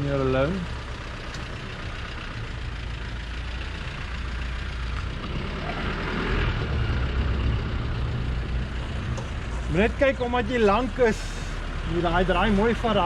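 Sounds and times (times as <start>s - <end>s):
vehicle engine at low revs: 0.0s - 13.0s.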